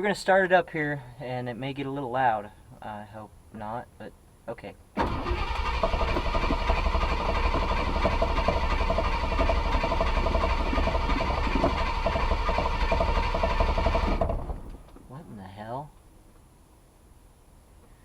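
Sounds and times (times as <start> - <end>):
engine running rough: 5.0 - 15.0.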